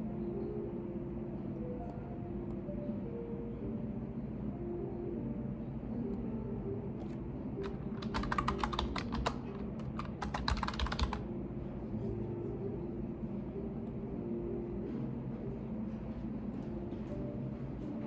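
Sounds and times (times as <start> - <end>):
steady low hum: 0.0 - 18.0
computer keyboard typing: 7.0 - 11.2.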